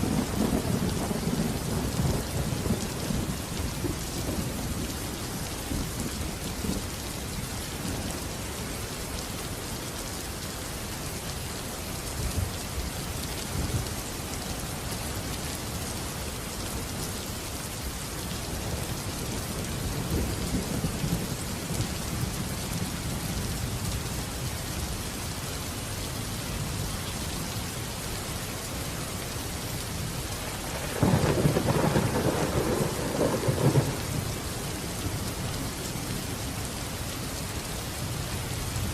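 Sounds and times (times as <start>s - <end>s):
thunder rumbling: 0.0s - 4.9s, 30.5s - 35.4s
rainfall hissing: 0.0s - 38.9s
close thunderclap: 30.6s - 34.3s.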